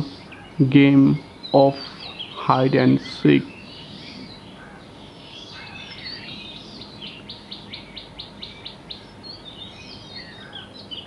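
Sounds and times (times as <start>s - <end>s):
fast high bird trill: 0.0s - 11.0s
songbirds chirping: 0.0s - 11.0s.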